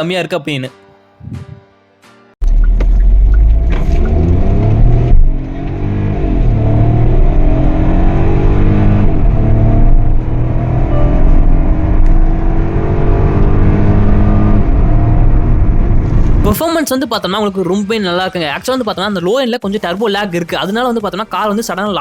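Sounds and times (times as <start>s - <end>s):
car engine accelerating hard: 2.6s - 16.5s.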